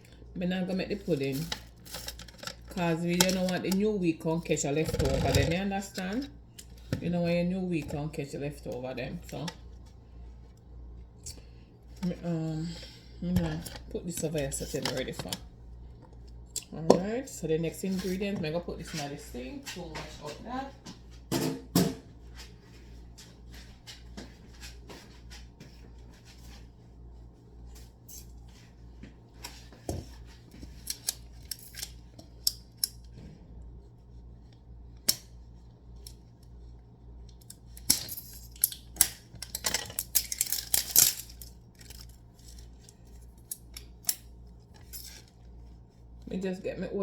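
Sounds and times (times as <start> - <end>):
steady low hum: 0.0 - 47.0
utensils and containers clinking: 37.8 - 42.2.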